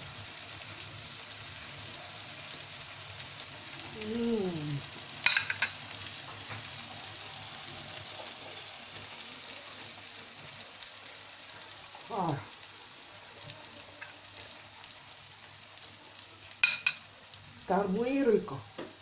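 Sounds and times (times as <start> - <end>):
steady sizzling hiss: 0.0 - 19.0
person humming mmm: 3.9 - 4.8
cutlery clinking against dish: 5.2 - 5.8, 16.6 - 17.0.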